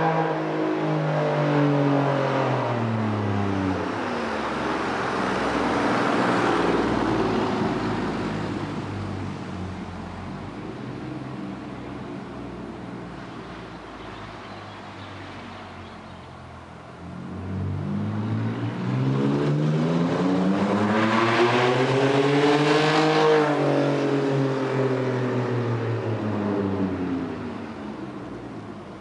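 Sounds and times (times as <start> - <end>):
car engine accelerating past: 17.1 - 27.5.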